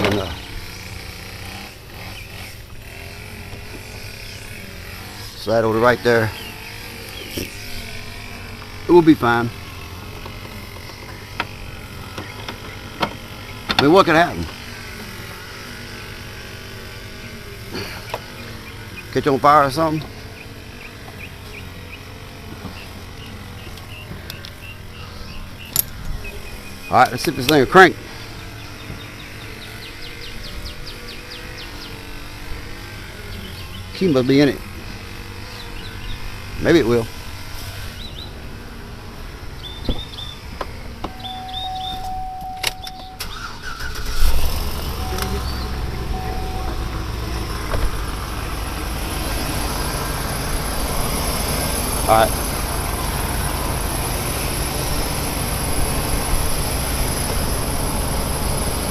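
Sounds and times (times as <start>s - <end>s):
car engine idling: 0.0s - 58.9s
starter motor cranking: 0.0s - 58.9s
insect chirping: 41.0s - 52.5s.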